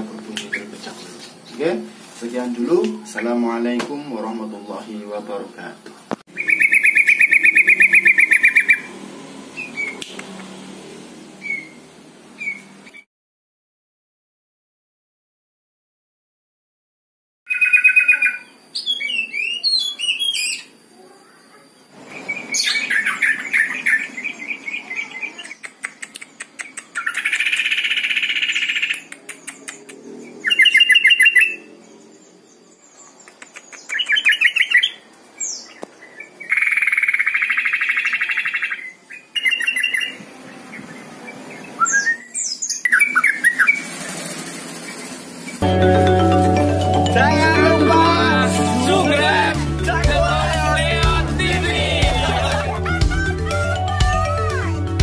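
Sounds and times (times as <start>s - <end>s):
bulbul singing chattering trills: 6.3s - 10.0s.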